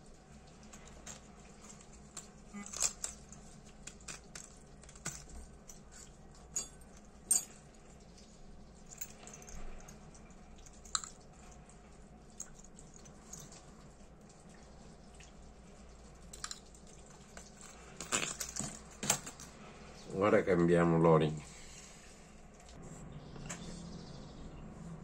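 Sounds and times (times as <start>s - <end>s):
small metal parts clicking: 0.6s - 7.6s, 10.6s - 11.2s, 16.3s - 19.5s.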